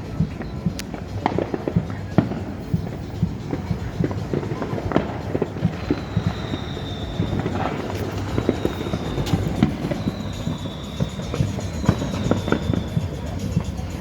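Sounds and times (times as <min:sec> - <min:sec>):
fireworks popping and crackling: 0:00.0 - 0:14.0
high whistle sliding downward: 0:04.6 - 0:14.0.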